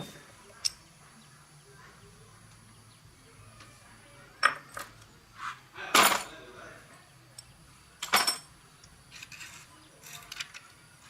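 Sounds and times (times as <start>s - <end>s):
hand tools clinking: 7.3s - 10.8s.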